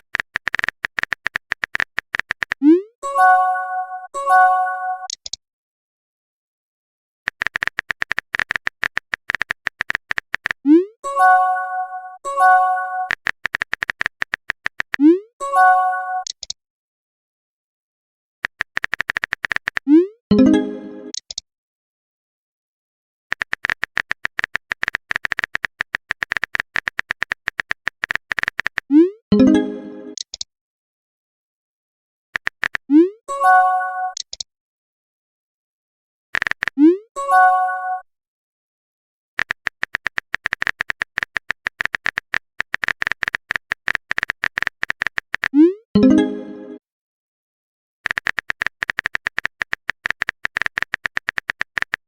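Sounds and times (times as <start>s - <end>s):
keyboard typing clicks: 0.0s - 2.8s, 5.0s - 5.4s, 7.3s - 10.8s, 12.4s - 15.2s, 16.2s - 16.6s, 18.4s - 21.4s, 23.3s - 30.5s, 32.4s - 33.1s, 34.1s - 34.5s, 36.4s - 37.0s, 39.4s - 46.8s, 48.0s - 52.0s.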